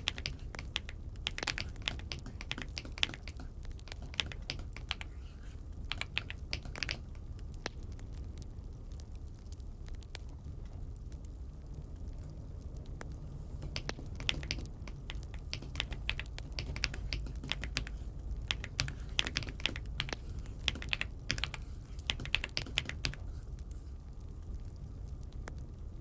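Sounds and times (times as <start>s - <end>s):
mechanical keyboard typing: 0.0s - 7.8s, 13.5s - 23.3s
steady low hum: 0.0s - 26.0s.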